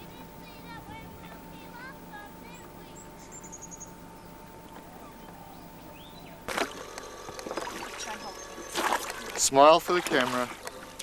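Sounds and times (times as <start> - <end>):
steady low hum: 0.0 - 11.0
high bird trill: 0.1 - 4.3, 4.9 - 6.5
faint bird chirps: 1.5 - 6.5.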